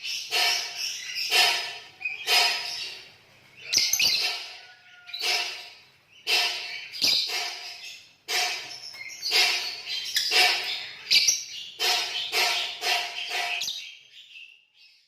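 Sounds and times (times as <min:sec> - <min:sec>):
lovebirds shrill chattering trills: 0:00.0 - 0:14.1.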